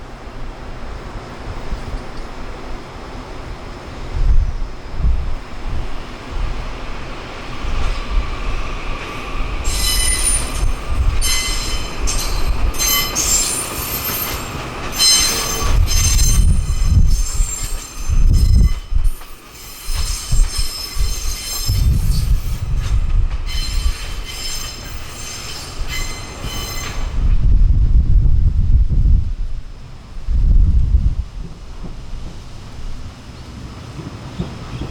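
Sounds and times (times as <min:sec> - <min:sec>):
rumble of moving train: 0:00.0 - 0:34.9
train wheels squealing on rails: 0:07.8 - 0:27.4.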